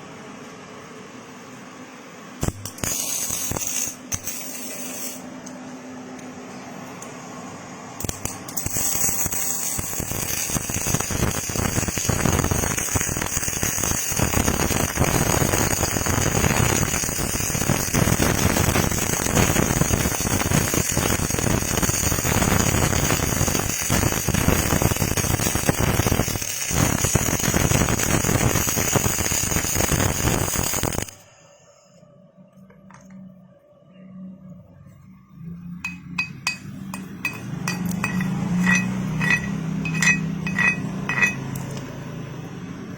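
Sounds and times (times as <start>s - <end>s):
welding arc crackle: 2.4s - 5.6s, 8.0s - 31.3s, 36.5s - 42.0s
light metallic clinks: 35.9s - 41.8s.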